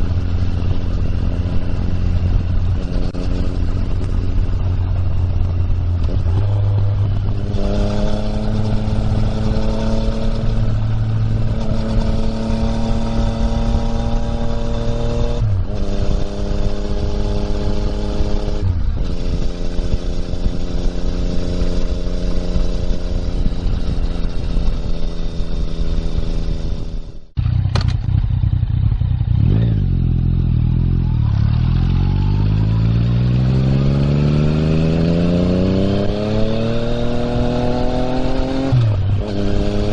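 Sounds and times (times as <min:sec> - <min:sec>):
wind noise: 0:00.0 - 0:28.7, 0:31.3 - 0:39.9
motorcycle engine riding: 0:00.0 - 0:39.9.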